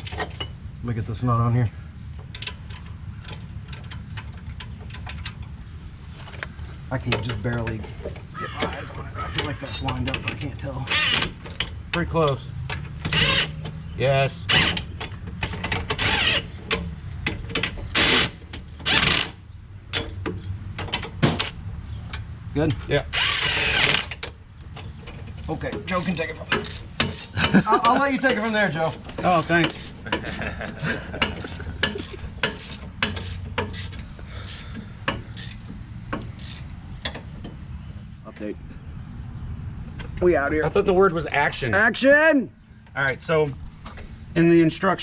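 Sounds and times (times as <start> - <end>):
small metal clicks: 2.1 - 5.6
power tool running a nut down: 23.2 - 24.1
tool clicks and scrapes on metal: 31.2 - 37.6.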